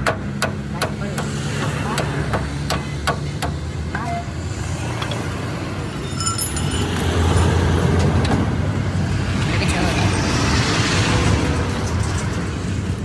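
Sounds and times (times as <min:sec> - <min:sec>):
sharp knocks: 0:00.0 - 0:03.6
road traffic rumbling: 0:00.0 - 0:13.0
vehicle passing by: 0:00.6 - 0:13.0.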